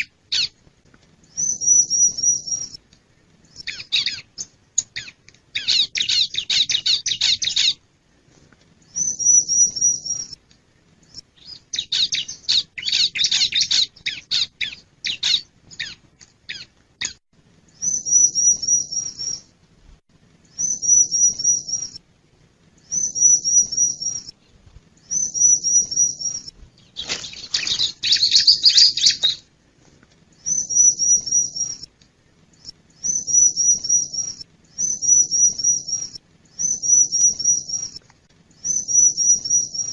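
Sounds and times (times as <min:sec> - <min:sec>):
bird singing high repeated notes: 0:01.3 - 0:02.8, 0:08.9 - 0:10.4, 0:17.8 - 0:19.5, 0:20.5 - 0:22.0, 0:22.8 - 0:24.4, 0:25.0 - 0:29.4, 0:30.4 - 0:31.9, 0:32.6 - 0:38.0, 0:38.6 - 0:39.9
bird scratchy chattering: 0:27.0 - 0:29.4.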